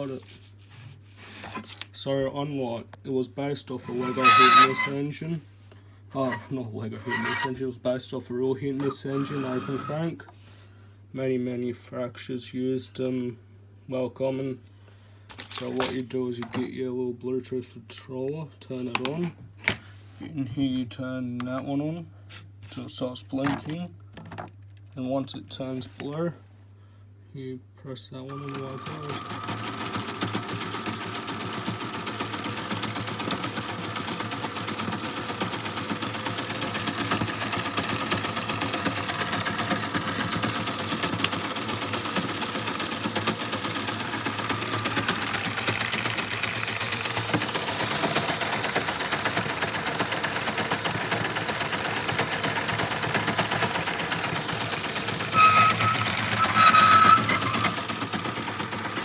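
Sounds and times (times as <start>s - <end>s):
toy engine mechanism clattering: 3.8s - 5.0s, 6.2s - 7.5s, 8.8s - 10.0s, 28.3s - 59.0s.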